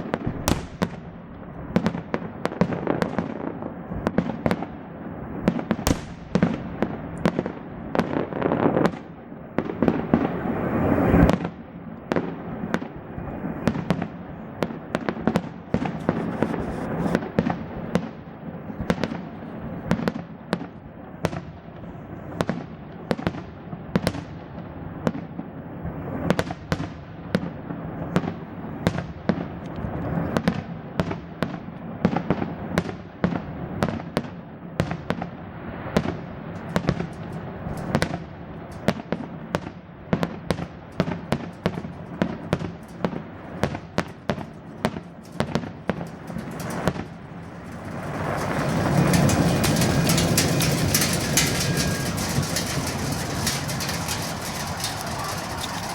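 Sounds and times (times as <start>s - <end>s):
fireworks bangs and crackles: 0.0s - 55.9s
rushing firework swell: 46.3s - 55.9s.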